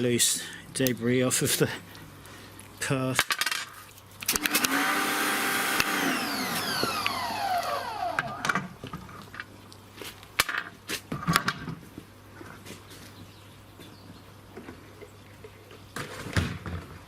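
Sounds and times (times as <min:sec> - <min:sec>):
pressure washer motor winding down: 0:04.3 - 0:08.7.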